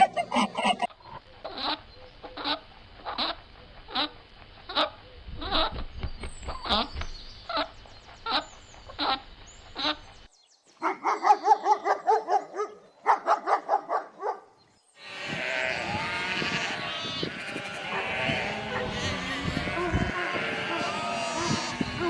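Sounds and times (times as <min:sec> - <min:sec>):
mix of animal calls: 0:00.0 - 0:05.9, 0:10.8 - 0:14.4, 0:15.0 - 0:22.0
bleat-like calls: 0:15.0 - 0:22.0.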